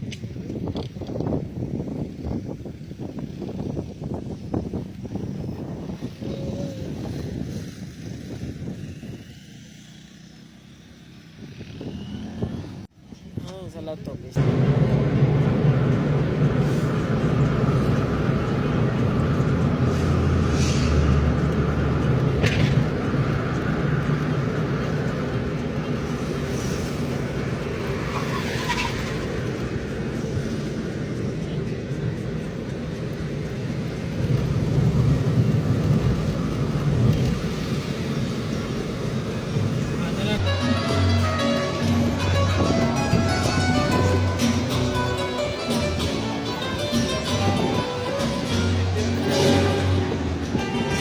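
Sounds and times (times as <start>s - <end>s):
airplane engine rumble: 14.2s - 51.0s.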